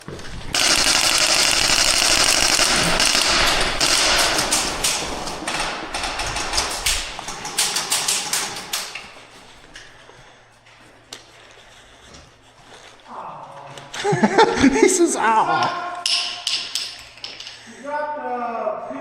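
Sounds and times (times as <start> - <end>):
airsoft guns firing: 0.5 - 9.2.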